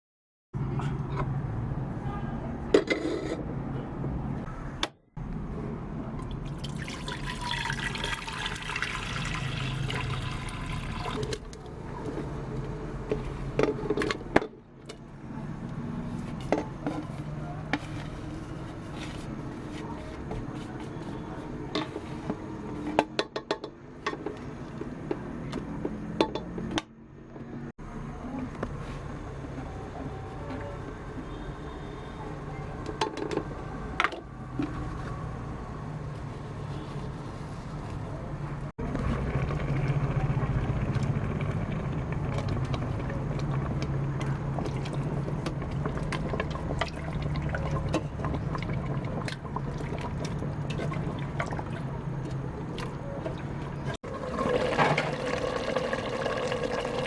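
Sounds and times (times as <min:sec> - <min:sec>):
running water: 0:06.4 - 0:11.6.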